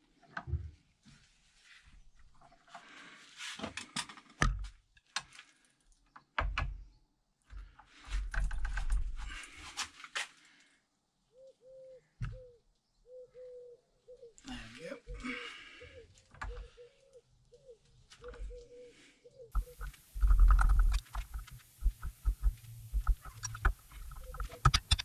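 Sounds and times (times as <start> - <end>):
short cooing calls: 11.4 - 14.5.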